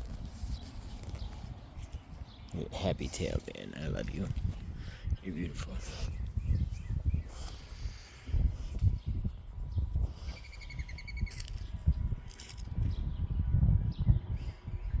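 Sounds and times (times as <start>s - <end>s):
bird chirping: 0.5s - 11.8s.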